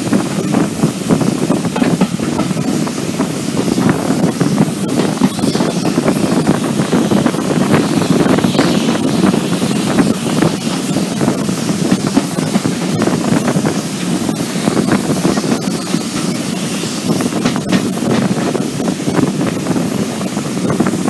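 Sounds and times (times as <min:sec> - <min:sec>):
train wheels clattering on track: 0:00.0 - 0:21.0
wind buffeting microphone: 0:00.0 - 0:21.0.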